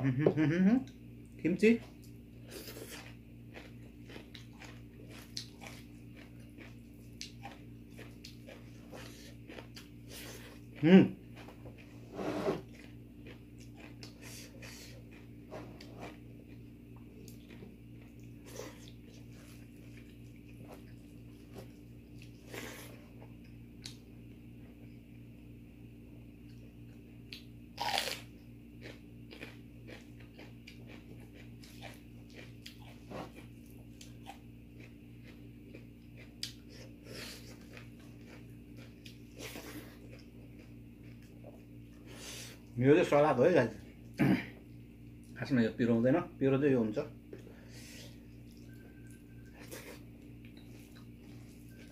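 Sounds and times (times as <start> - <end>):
chewing and crunching food: 0.8 - 25.4, 26.2 - 45.5, 47.1 - 51.9
low hum: 47.0 - 51.9.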